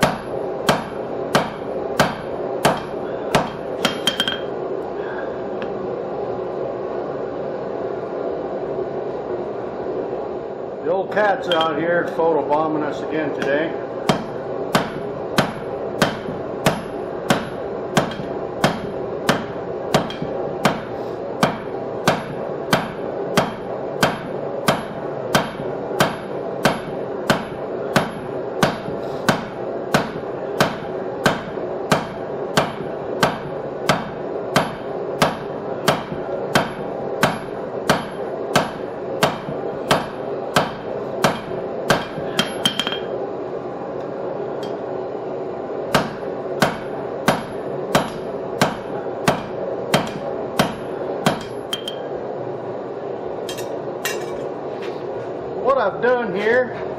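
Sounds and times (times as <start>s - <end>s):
hammer striking steel on anvil: 0.0s - 4.5s, 11.4s - 11.8s, 13.4s - 43.1s, 45.9s - 52.1s, 53.5s - 54.5s.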